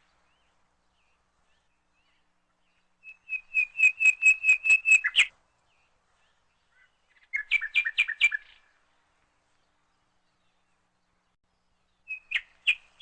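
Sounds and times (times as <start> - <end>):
bird chirping high whistles: 3.0 - 5.3.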